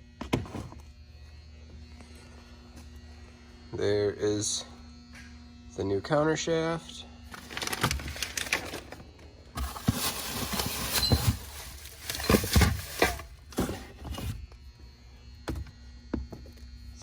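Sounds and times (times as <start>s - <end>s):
packaging rustling: 7.4s - 9.0s, 9.6s - 14.4s
knocks and thumps of parts: 9.6s - 14.4s.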